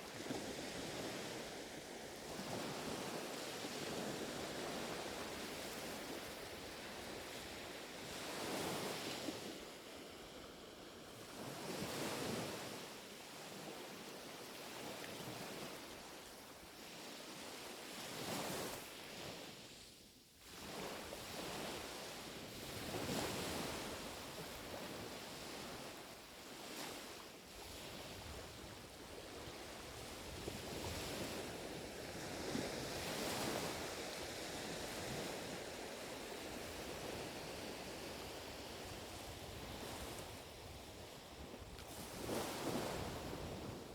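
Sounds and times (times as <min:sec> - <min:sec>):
waves lapping on shore: 0:00.0 - 0:43.9.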